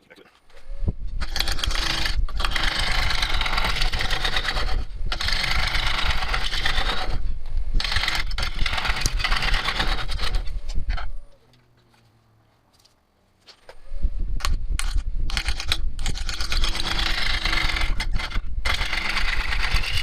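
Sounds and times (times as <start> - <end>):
gouge scraping wood on a lathe: 1.2 - 7.2, 7.8 - 10.6, 15.3 - 20.0.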